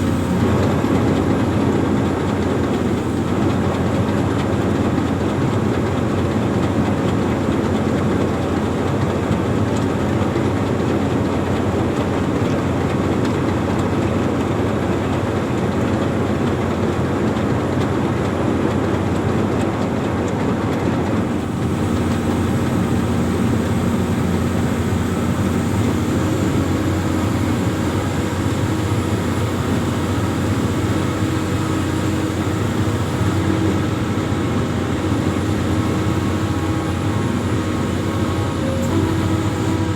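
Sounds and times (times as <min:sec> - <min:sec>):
diesel engine running: 0:00.0 - 0:39.9
steady droning tone: 0:21.2 - 0:39.9.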